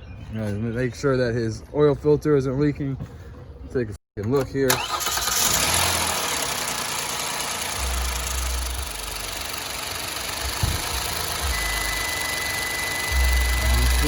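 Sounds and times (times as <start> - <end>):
car engine idling: 5.0 - 14.0.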